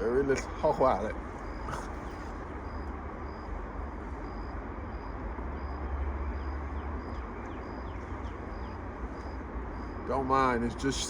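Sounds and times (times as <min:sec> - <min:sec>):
faint high-pitched chirp: 0:01.4 - 0:10.1.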